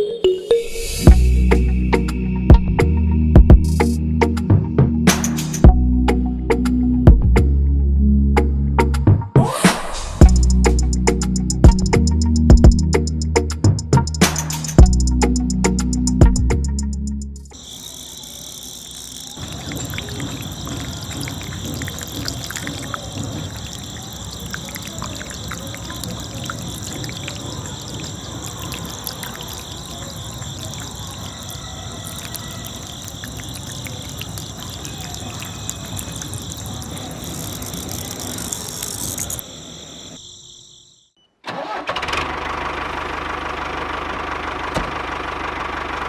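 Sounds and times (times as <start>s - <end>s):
seeds pouring and ticking: 17.6s - 39.4s.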